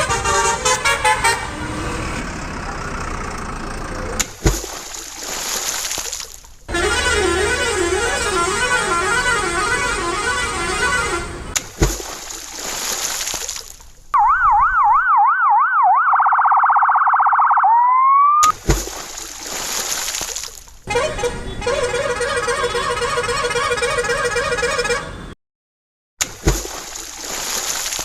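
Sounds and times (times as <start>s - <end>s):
electronic siren wailing and yelping: 14.2s - 18.5s.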